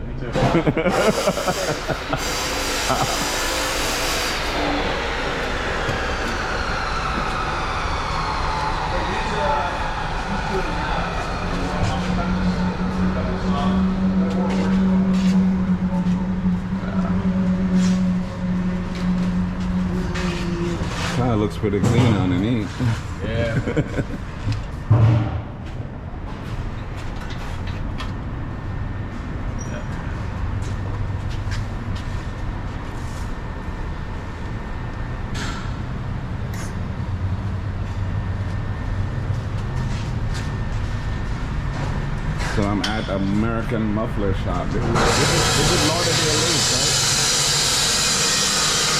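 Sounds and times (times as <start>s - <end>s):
low machine hum: 0.0s - 48.9s
low mechanical drone: 0.0s - 48.9s
short hissing bursts: 1.0s - 4.5s.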